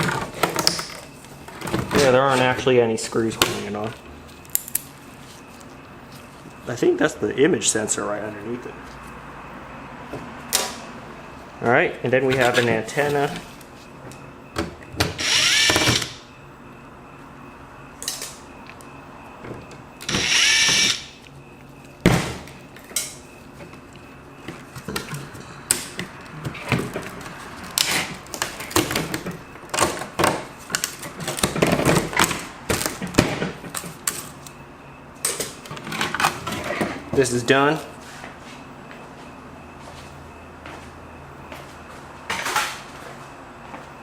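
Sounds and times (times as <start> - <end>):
electric screwdriver whirring: 15.2 - 16.2, 20.1 - 21.1.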